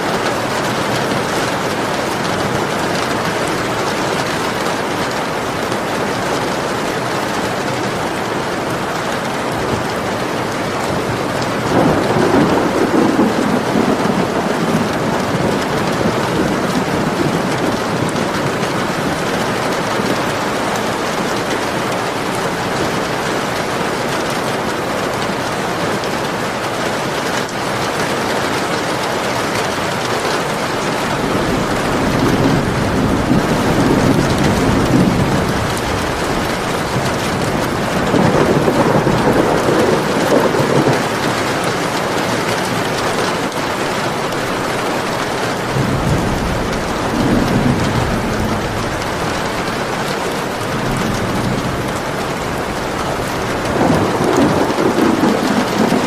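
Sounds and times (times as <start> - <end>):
steady rain: 0.0 - 56.0
rolling thunder: 9.3 - 20.6, 30.8 - 43.5, 45.2 - 56.0.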